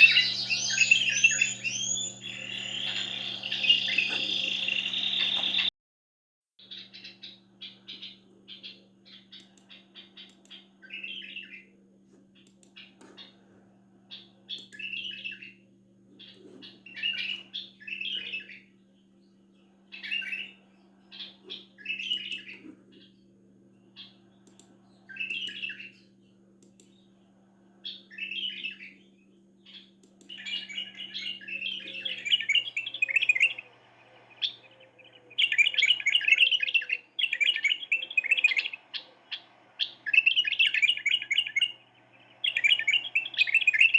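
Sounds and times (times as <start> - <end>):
birds singing: 0.0 - 5.7, 6.6 - 13.4, 14.0 - 43.9
faint steady hum: 0.0 - 5.7, 6.6 - 43.9
fast warbling trills: 0.0 - 5.7.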